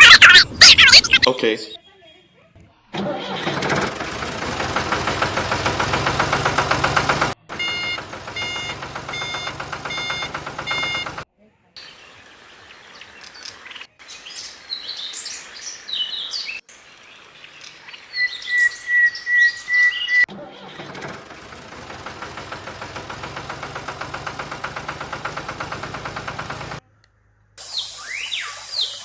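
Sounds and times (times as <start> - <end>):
birds chirping and whistling: 0.0 - 2.4, 11.8 - 20.3, 27.6 - 29.0.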